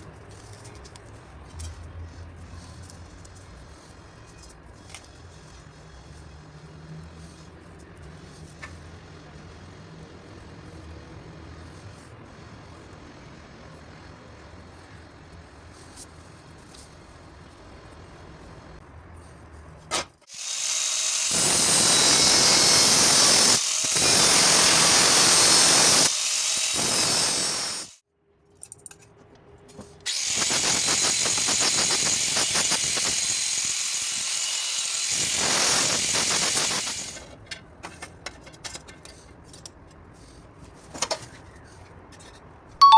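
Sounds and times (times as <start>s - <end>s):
harsh hiss of cutting or welding: 20.3s - 28.0s, 30.3s - 37.2s.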